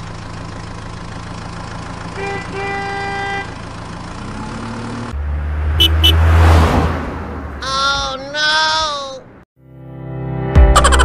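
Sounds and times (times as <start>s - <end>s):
vehicle engine idling: 0.0s - 6.5s
horn honking: 2.0s - 3.9s, 5.7s - 6.8s.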